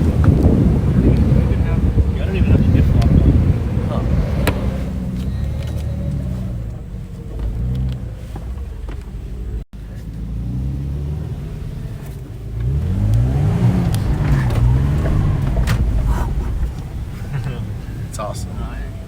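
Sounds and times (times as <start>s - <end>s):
engine revving: 0.0s - 19.0s
light knocks and rattles: 12.0s - 19.0s.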